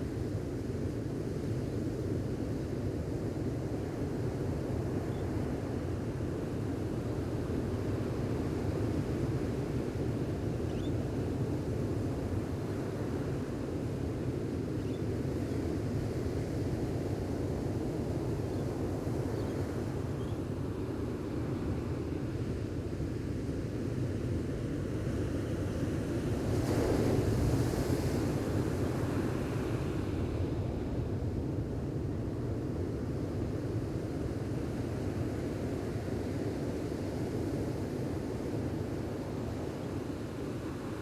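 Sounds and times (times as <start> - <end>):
ocean waves washing on beach: 16.3 - 41.0.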